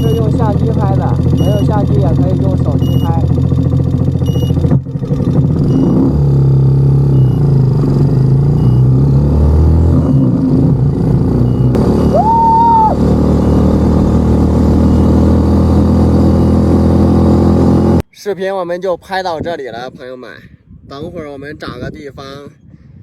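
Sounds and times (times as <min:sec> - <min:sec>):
motorcycle engine pulling away: 0:00.0 - 0:18.0.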